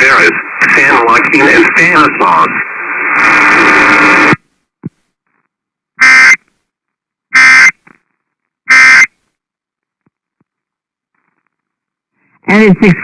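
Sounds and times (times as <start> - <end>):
harsh digital squawks: 6.0 - 6.4, 7.4 - 7.7, 8.7 - 9.1.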